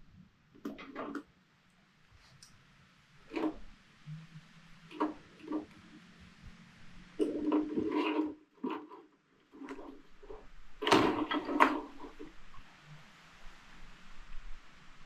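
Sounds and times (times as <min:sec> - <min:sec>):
knocks and rattles on a workbench: 0:07.2 - 0:12.3.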